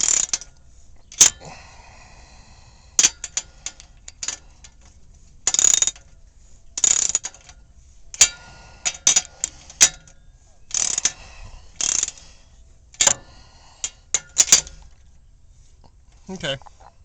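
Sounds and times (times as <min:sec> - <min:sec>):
socket ratchet clicking: 0:00.0 - 0:00.5, 0:01.1 - 0:01.4, 0:03.0 - 0:04.8, 0:05.4 - 0:06.1, 0:06.8 - 0:07.6, 0:08.2 - 0:11.2, 0:11.8 - 0:12.2, 0:13.0 - 0:13.2, 0:13.8 - 0:14.9
metal clinks and knocks: 0:00.0 - 0:01.4, 0:13.0 - 0:15.2.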